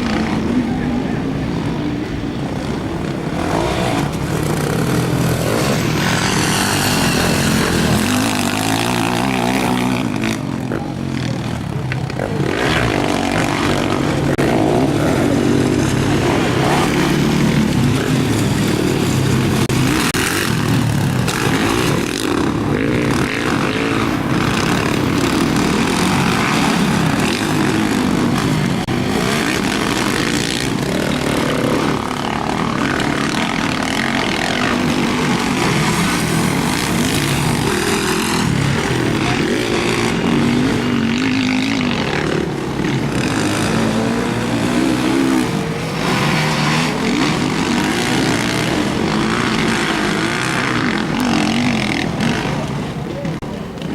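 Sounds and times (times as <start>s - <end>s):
motocross engines revving: 0.0s - 53.9s.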